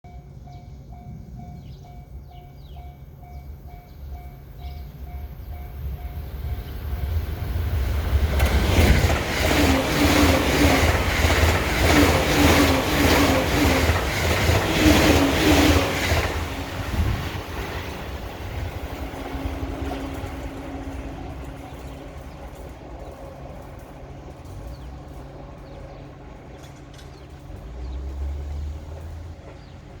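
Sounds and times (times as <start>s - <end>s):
wheels clattering over rail joints: 7.0s - 30.0s.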